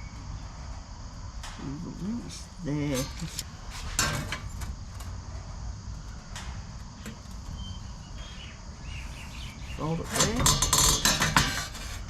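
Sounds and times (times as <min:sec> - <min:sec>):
steady low hum: 0:00.0 - 0:12.0
sheet metal knocks and scrapes: 0:03.0 - 0:04.8, 0:10.0 - 0:12.0.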